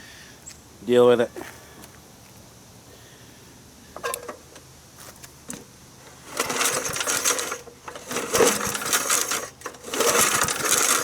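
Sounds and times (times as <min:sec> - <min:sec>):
metallic clattering and rattling: 0:06.2 - 0:11.0.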